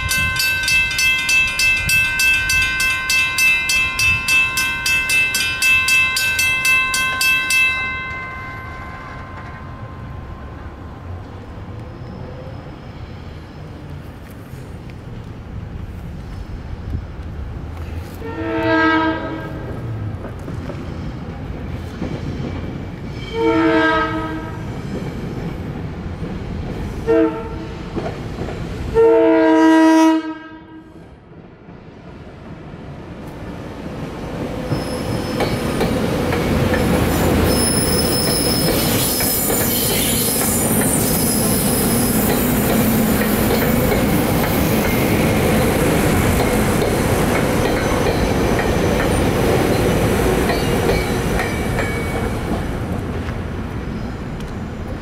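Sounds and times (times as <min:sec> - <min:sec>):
train wheel and rail roar: 0:00.0 - 0:55.0
train horn blasts: 0:18.2 - 0:19.7, 0:23.3 - 0:24.7, 0:27.0 - 0:27.8, 0:29.0 - 0:31.0
high wheel squeal: 0:34.7 - 0:35.8, 0:36.7 - 0:43.5.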